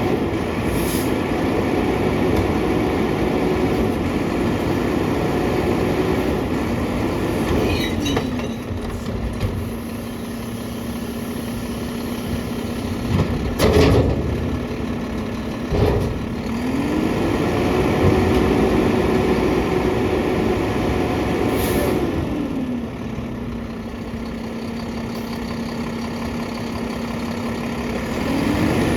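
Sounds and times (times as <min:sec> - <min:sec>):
diesel engine revving: 0:00.0 - 0:07.9, 0:08.9 - 0:28.9
loud clunks: 0:13.0 - 0:16.4.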